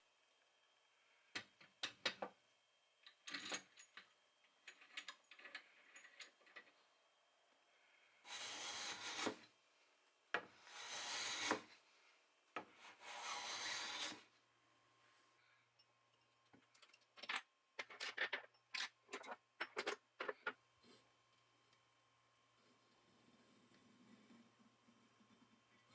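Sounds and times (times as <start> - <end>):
rasping strokes across wood: 8.3 - 9.4, 10.7 - 11.7, 13.0 - 14.2.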